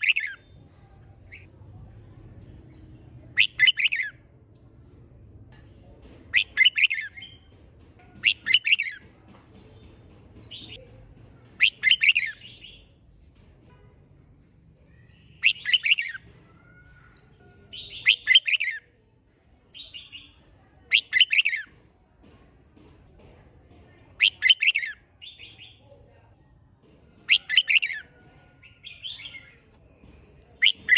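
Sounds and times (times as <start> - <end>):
bulbul singing warbled phrases: 0.0 - 1.5, 2.6 - 4.2, 6.3 - 7.5, 8.2 - 9.0, 10.3 - 10.8, 11.5 - 12.9, 14.8 - 16.2, 16.9 - 18.8, 19.8 - 22.0, 24.2 - 25.8, 27.2 - 29.7, 30.6 - 30.9
faint bird chirps: 14.7 - 19.0.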